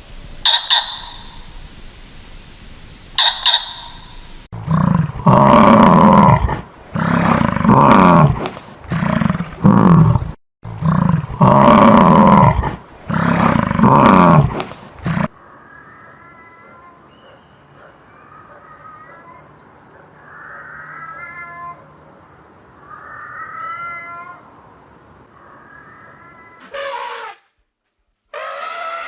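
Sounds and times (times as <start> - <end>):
short sharp high animal call: 0.4 - 1.5, 3.2 - 4.2
large animal roaring: 4.6 - 15.4.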